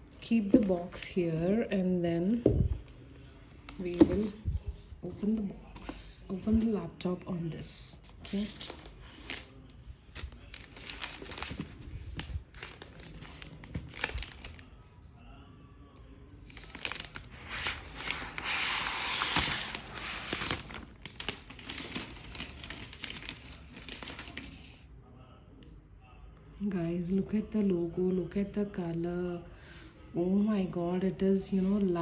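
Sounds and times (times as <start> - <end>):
packaging crinkling and rustling: 8.1 - 14.7, 16.5 - 24.8
packaging tearing: 12.5 - 14.6, 16.6 - 24.5.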